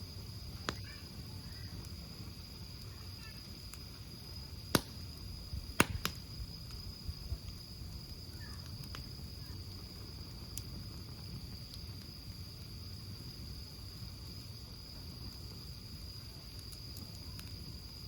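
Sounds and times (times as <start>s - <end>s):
campfire rumble: 0.0s - 18.0s
fire crackles and pops: 0.0s - 18.0s.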